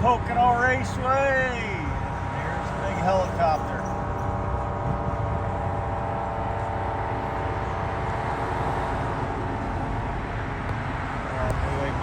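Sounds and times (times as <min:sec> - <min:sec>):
helicopter engines and rotor humming: 0:00.0 - 0:08.2.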